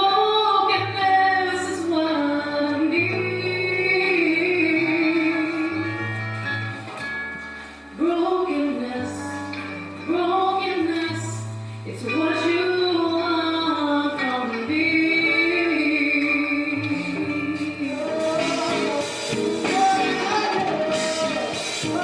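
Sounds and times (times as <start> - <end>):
gospel singing voices: 15.2 - 22.0.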